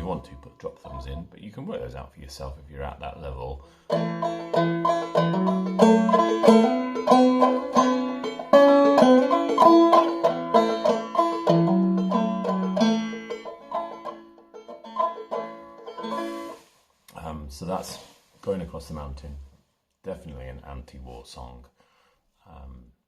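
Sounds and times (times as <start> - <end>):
banjo plucking and strumming: 0.0 - 18.2.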